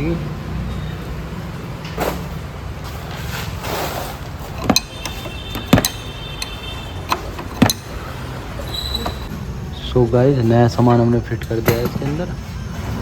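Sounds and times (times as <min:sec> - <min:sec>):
low workshop hum: 0:02.8 - 0:13.0
metal tools knocking on metal: 0:04.4 - 0:08.4
sharp metal clanks: 0:04.4 - 0:08.4.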